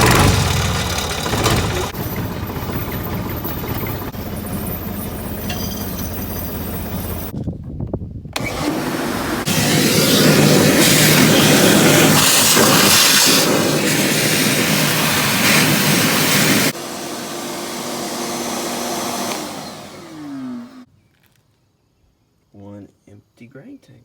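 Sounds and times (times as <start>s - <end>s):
air machine rushing: 8.4s - 20.8s
motor winding down whine: 8.4s - 20.9s.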